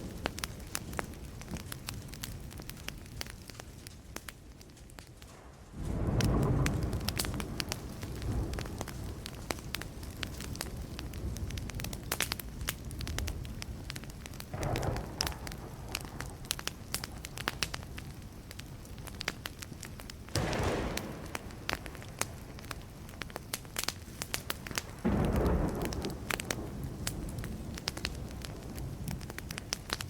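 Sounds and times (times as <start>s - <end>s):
wood fire crackling and popping: 0.0s - 30.0s
distant thunder rumbling: 5.7s - 9.4s, 14.5s - 17.5s, 20.3s - 23.5s, 24.6s - 29.6s.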